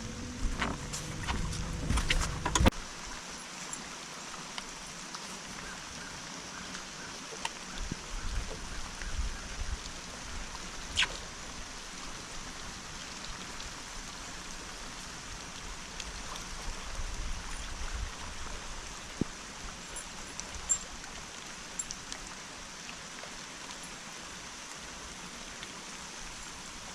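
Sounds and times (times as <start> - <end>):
water hissing: 0.0 - 2.7
wind rumble on microphone: 0.0 - 2.8, 7.7 - 12.8, 15.3 - 19.8.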